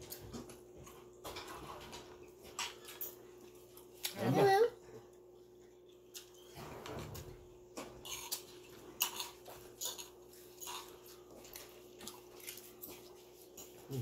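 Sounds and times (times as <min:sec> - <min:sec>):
person chewing and lip-smacking: 0:08.0 - 0:14.0.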